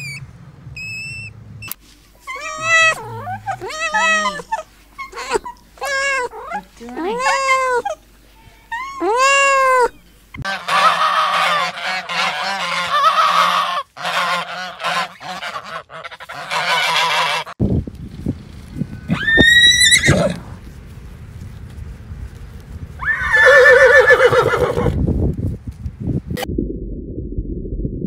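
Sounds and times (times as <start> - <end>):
geese honking and cackling: 2.2 - 8.0, 10.4 - 17.6
kitten meowing: 2.3 - 6.5
horse whinnying: 2.3 - 8.0, 19.1 - 20.4, 23.0 - 25.0.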